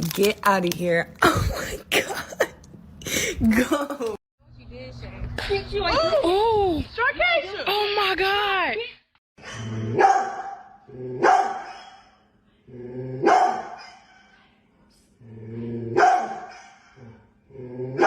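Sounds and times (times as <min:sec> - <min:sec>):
dog barking: 0:10.0 - 0:12.2, 0:13.2 - 0:14.1, 0:16.0 - 0:16.9.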